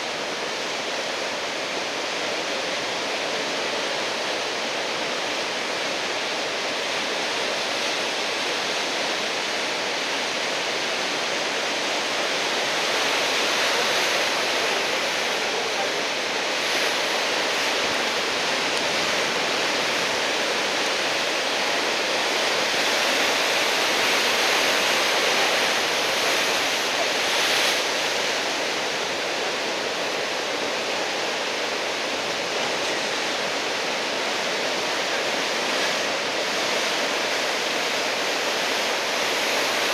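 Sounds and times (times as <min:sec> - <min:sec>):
roar of breaking waves: 0:00.0 - 0:39.9.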